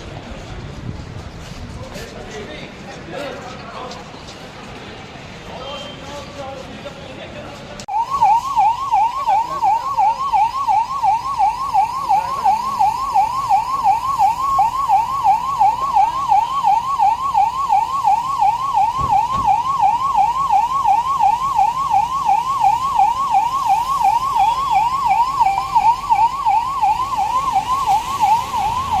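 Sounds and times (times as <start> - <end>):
electronic siren sweeping: 7.9 - 29.0.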